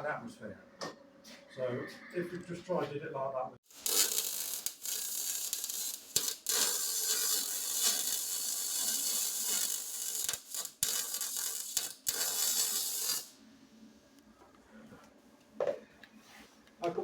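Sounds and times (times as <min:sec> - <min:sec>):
welder arc crackling: 0:03.7 - 0:13.4.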